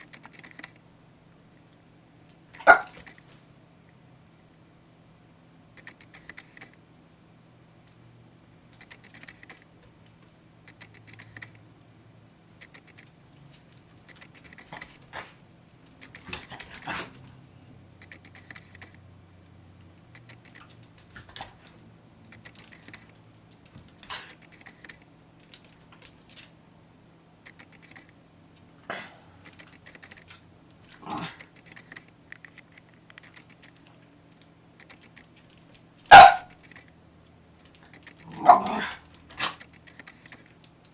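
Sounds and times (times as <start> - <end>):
lens focusing clicks and whirs: 0.0 - 0.8, 2.5 - 3.4, 5.8 - 6.8, 8.8 - 11.6, 12.6 - 13.2, 14.0 - 15.1, 15.9 - 17.1, 18.0 - 19.0, 20.0 - 21.6, 22.3 - 23.2, 23.9 - 25.1, 27.4 - 28.2, 29.4 - 35.8, 36.5 - 37.0, 37.6 - 38.5, 39.1 - 40.9.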